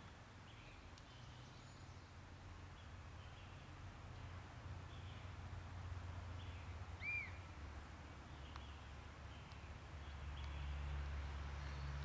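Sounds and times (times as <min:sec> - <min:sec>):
bird chirps: 0:06.5 - 0:07.4
faint ticks: 0:08.4 - 0:08.8.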